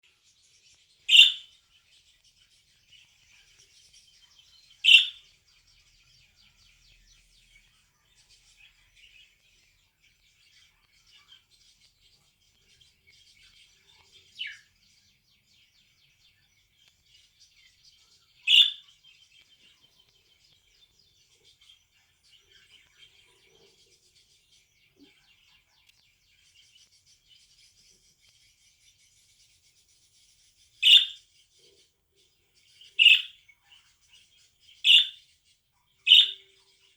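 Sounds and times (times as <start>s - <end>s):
loud budgerigar chirps: 1.0s - 31.8s, 32.5s - 36.9s
budgerigar chattering: 1.1s - 1.5s, 4.8s - 5.2s, 18.5s - 18.8s, 30.8s - 31.2s, 33.0s - 33.4s, 34.8s - 35.2s, 36.1s - 36.5s.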